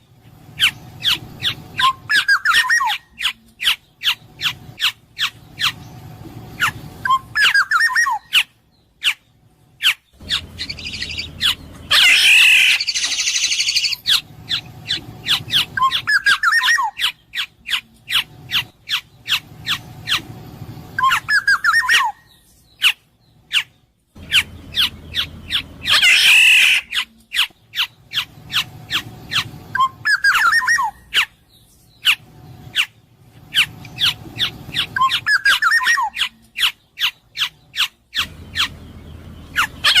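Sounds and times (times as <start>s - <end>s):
bird harsh nasal squawk: 9.8s - 20.2s, 22.8s - 31.3s
bird fluty whistled phrases: 29.7s - 31.0s.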